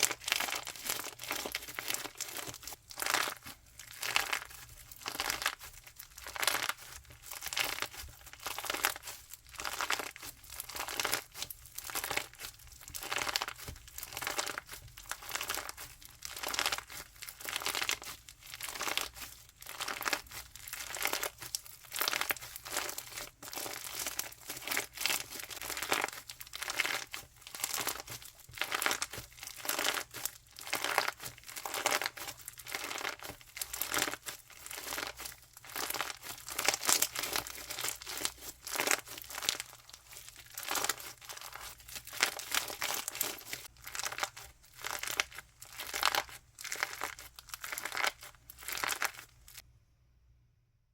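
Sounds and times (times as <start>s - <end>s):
crunchy slime crackling and popping: 0.0s - 49.6s.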